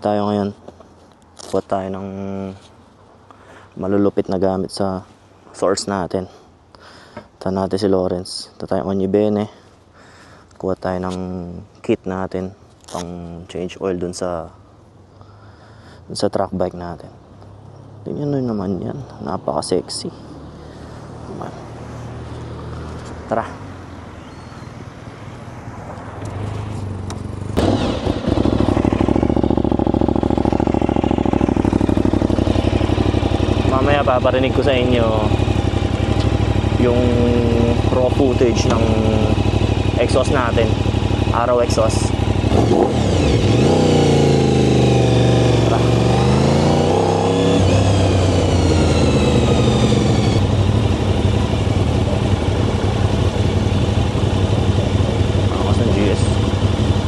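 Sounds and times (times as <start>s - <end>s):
motorcycle engine starting: 26.3s - 57.0s
motorcycle engine idling: 27.0s - 57.0s.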